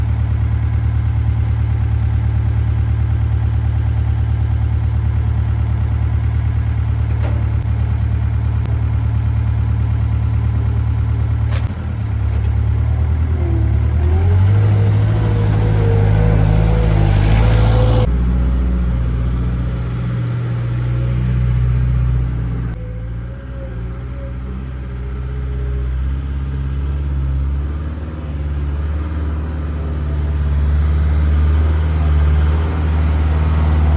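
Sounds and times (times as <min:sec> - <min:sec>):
loader engine running: 0:00.0 - 0:33.9.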